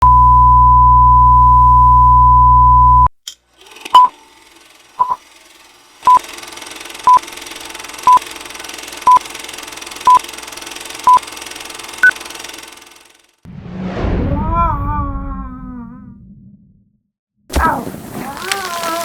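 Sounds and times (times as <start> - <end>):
short electronic beeps: 5.0 - 5.2.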